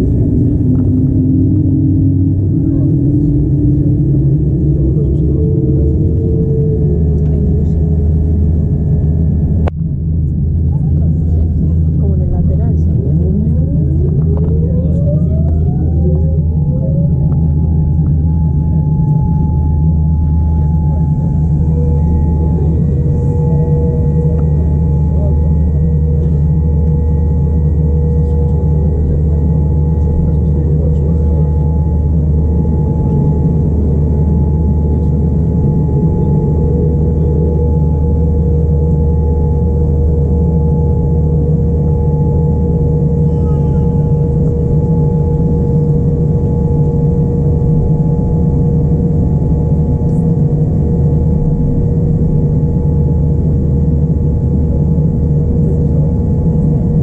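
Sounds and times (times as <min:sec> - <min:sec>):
jet engine and airflow rumble: 0:00.0 - 0:57.0
steady hums: 0:00.0 - 0:57.0.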